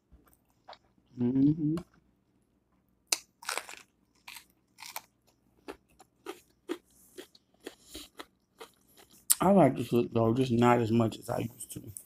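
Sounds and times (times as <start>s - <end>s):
crunchy chewing: 3.1s - 9.4s.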